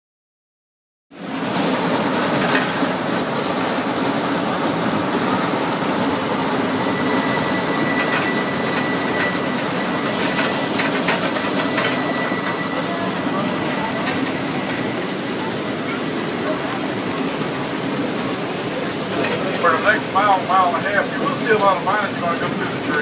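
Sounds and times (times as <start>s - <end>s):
train cars rumbling on track: 1.1s - 23.0s
thin high wheel squeal: 2.6s - 4.0s, 6.1s - 15.1s.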